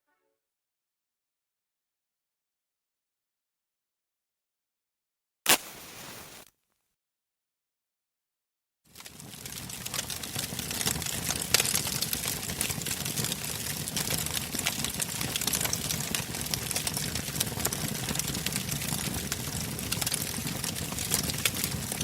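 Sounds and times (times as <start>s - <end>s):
bonfire crackling and popping: 5.5s - 6.5s, 8.9s - 22.0s.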